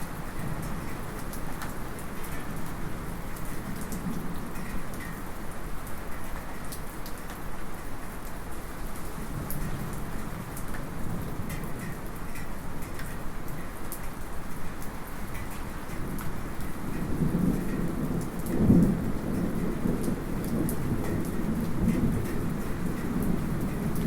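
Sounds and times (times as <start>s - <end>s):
light rain patter: 0.0s - 24.0s
sharp drip ticks: 0.6s - 5.2s, 11.5s - 24.0s.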